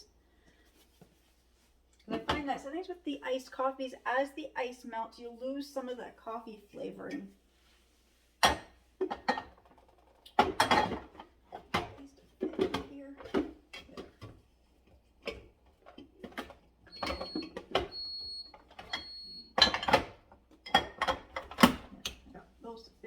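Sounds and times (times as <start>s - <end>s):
bottles and jars clinking: 18.7s - 21.6s.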